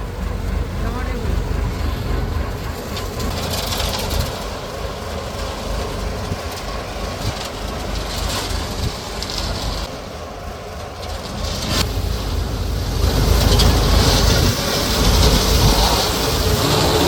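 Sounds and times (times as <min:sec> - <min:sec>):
diesel engine rumble: 0:00.0 - 0:17.0.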